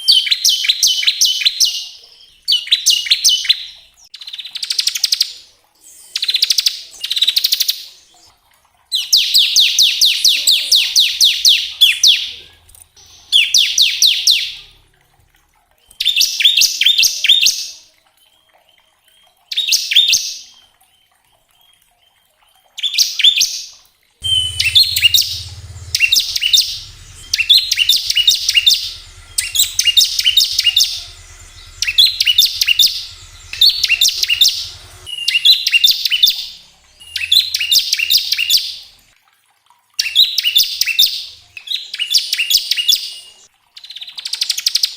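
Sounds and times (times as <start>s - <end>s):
bird buzzing trill: 24.2s - 35.1s
faint low hum: 24.2s - 39.1s.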